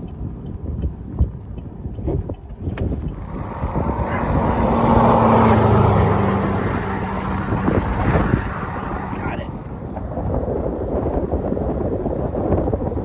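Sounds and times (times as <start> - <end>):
vehicle passing by: 3.0 - 10.3.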